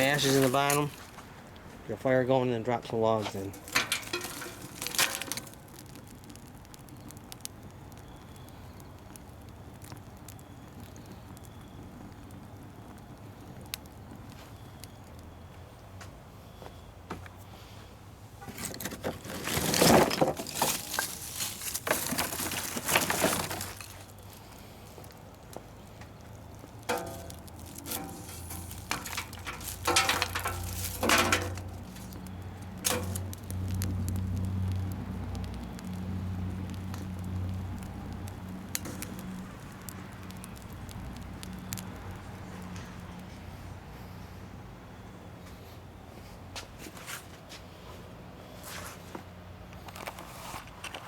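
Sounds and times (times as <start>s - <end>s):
wood scraps clattering into stove: 0.0s - 1.2s, 3.1s - 5.7s, 18.4s - 24.1s, 26.9s - 32.2s, 32.8s - 33.3s.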